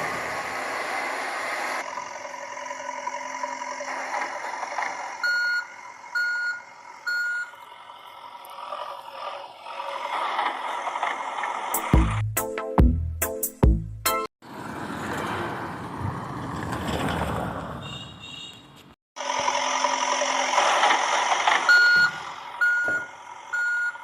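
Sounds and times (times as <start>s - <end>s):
vehicle whir: 0.0s - 12.0s, 14.4s - 18.5s, 19.2s - 24.0s
reversing beeper: 5.2s - 7.6s, 21.6s - 24.0s.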